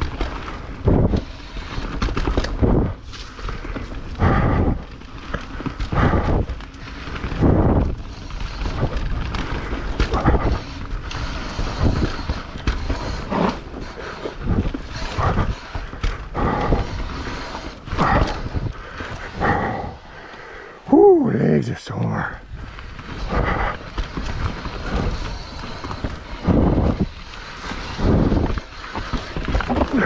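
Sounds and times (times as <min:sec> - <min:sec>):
bike rattling over bumps: 0:00.0 - 0:20.9, 0:22.4 - 0:30.0
wind on microphone: 0:00.5 - 0:01.5, 0:07.2 - 0:20.2, 0:22.4 - 0:30.0.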